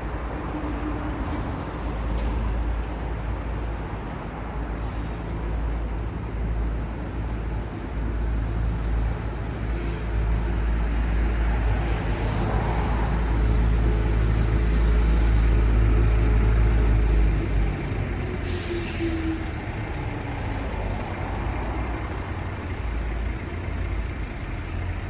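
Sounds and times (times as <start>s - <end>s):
traffic rumble: 0.0s - 25.0s
vehicle approaching: 7.3s - 18.4s, 19.2s - 25.0s.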